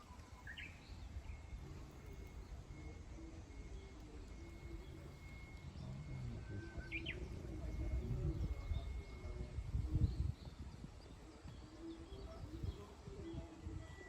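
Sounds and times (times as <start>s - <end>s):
bird chirping: 0.0s - 3.2s, 3.8s - 9.3s
soft low bird calls: 0.0s - 9.4s.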